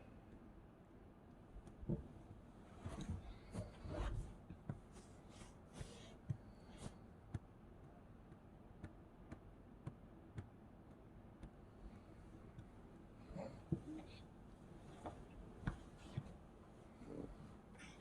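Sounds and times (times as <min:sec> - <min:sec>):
soft rustling and swishing: 0:01.8 - 0:07.0, 0:13.6 - 0:17.7.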